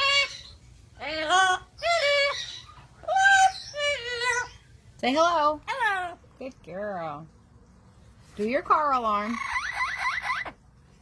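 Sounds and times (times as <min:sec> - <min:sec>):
parrot calls: 0:00.0 - 0:04.8, 0:05.7 - 0:06.2, 0:09.2 - 0:10.6.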